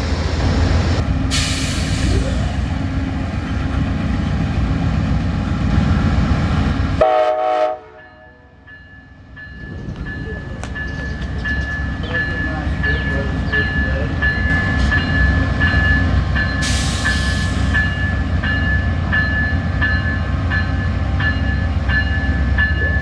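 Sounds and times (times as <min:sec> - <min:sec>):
passenger train rumbling: 0:00.0 - 0:23.0
train horn blast: 0:07.0 - 0:08.6.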